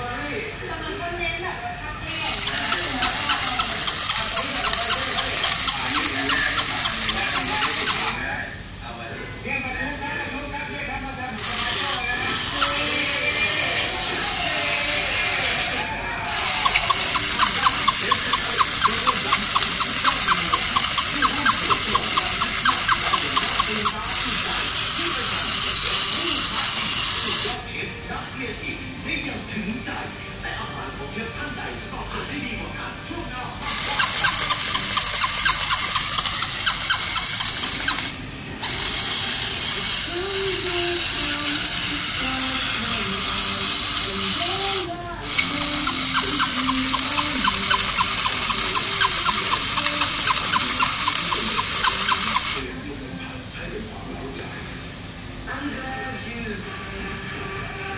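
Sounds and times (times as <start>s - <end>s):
toy mechanism clicking: 2.1s - 8.2s, 11.4s - 27.6s, 33.6s - 52.7s.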